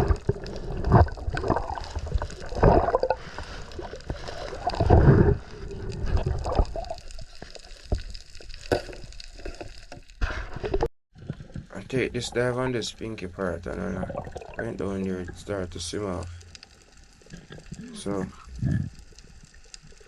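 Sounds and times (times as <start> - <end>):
rushes of water: 0.0 - 9.7, 13.7 - 20.0
water gurgling and sloshing: 0.0 - 20.0.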